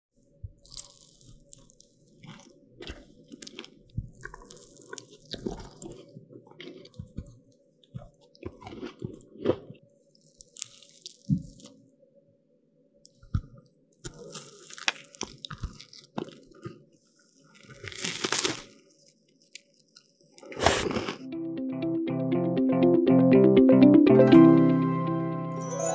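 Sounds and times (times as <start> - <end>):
soft chewing: 0.5 - 11.8, 13.1 - 21.2
biting crisp pastry: 0.6 - 7.3, 8.4 - 11.7, 14.0 - 16.8, 17.5 - 21.3.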